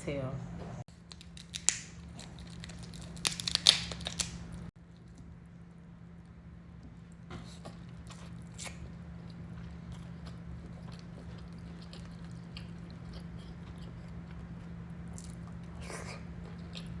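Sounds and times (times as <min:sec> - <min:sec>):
steady low hum: 0:00.0 - 0:17.0
close chewing with mouth clicks: 0:07.1 - 0:17.0.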